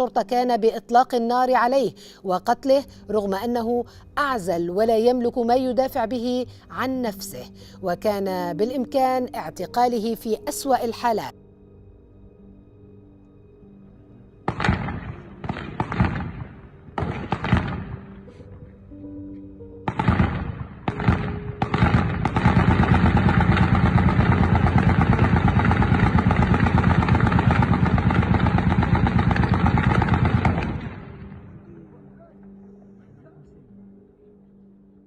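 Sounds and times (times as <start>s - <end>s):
single gunshots: 14.5s - 18.0s, 19.9s - 31.0s
automatic gunfire: 19.9s - 31.0s.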